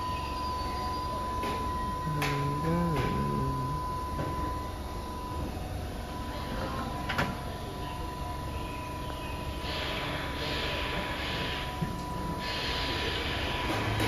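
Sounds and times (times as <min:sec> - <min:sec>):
steady high tone: 0:00.0 - 0:05.5
train rumbling to a stop: 0:00.0 - 0:06.3, 0:09.4 - 0:14.0
person speaking: 0:02.0 - 0:03.9.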